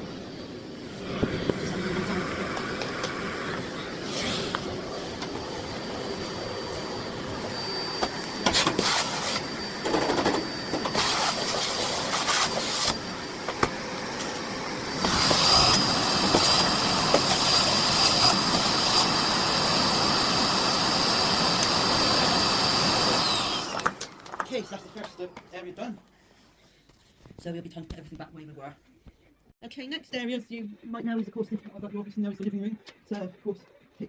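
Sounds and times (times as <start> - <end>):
vacuum cleaner whining: 0.0 - 25.5.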